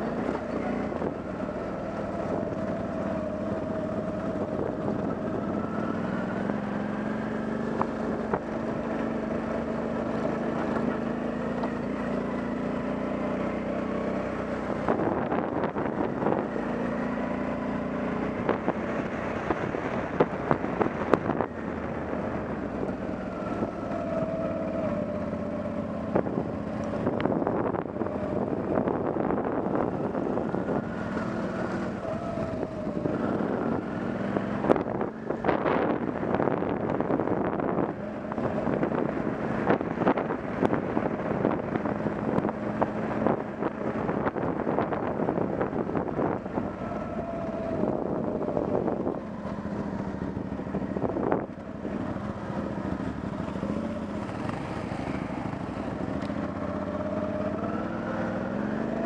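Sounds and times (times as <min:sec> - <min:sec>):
motorcycle engine revving: 0:00.0 - 0:59.0
wind buffeting microphone: 0:14.4 - 0:59.0.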